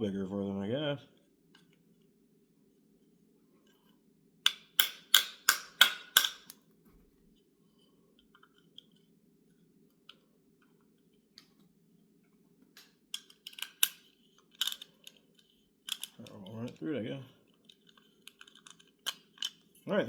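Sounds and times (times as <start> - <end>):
light clicks of metal parts: 12.8 - 19.9.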